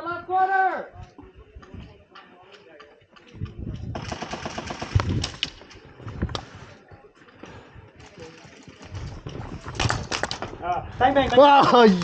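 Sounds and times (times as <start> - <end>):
airsoft gun burst: 4.0 - 5.4.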